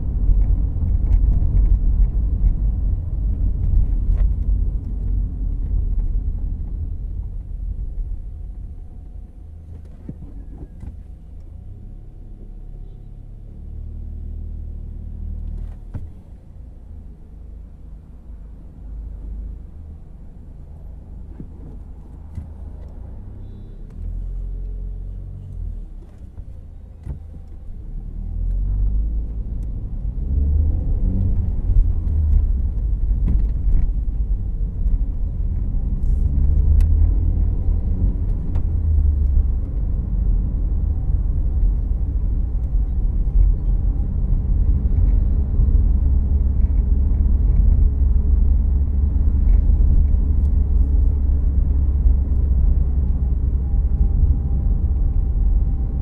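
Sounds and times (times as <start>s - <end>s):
road noise: 0.0s - 56.0s
car engine accelerating: 18.2s - 56.0s.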